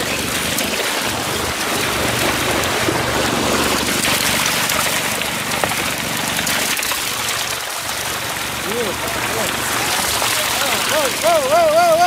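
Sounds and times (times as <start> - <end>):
truck engine humming: 0.0 - 12.0
water gushing into lake: 0.0 - 12.0.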